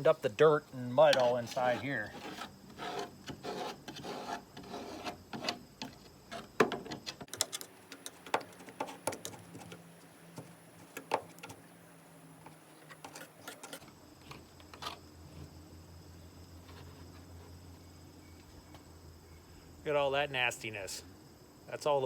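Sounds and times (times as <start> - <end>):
scraping dirt from window channel: 1.0 - 11.7, 12.4 - 15.5.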